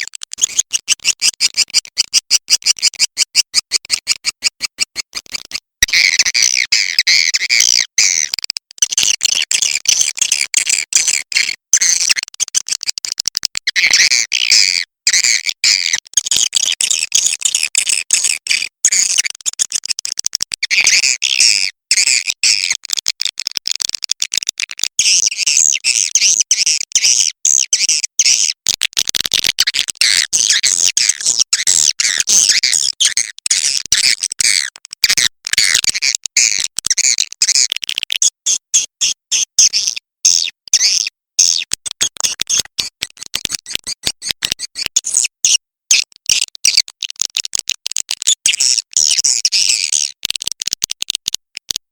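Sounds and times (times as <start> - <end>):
swiftlets twittering and chirping: 0.4 - 7.2, 39.6 - 45.3.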